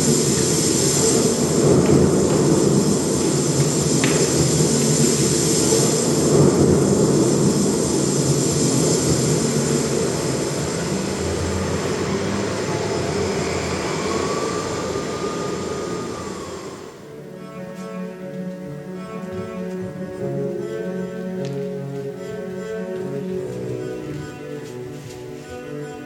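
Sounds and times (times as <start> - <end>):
loud steady rushing noise: 0.0 - 17.6
music with bowed strings: 17.1 - 26.0.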